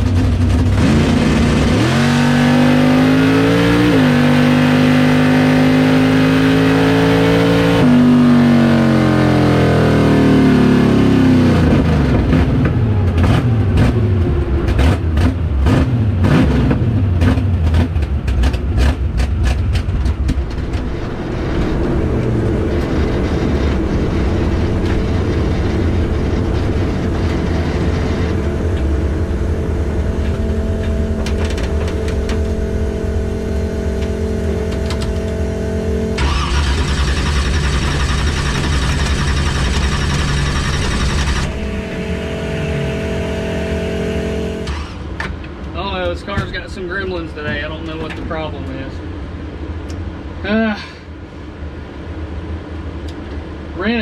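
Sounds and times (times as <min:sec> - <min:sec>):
exhaust crackling and popping: 0:00.0 - 0:02.4, 0:11.6 - 0:49.0
drag car engine at full throttle: 0:00.0 - 0:50.3.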